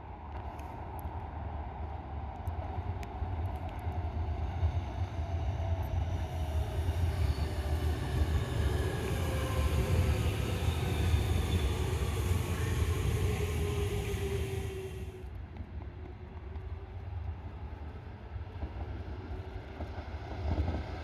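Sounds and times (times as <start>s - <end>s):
wheels rumbling on rail: 0.1s - 21.0s
train motor hum: 5.2s - 15.3s.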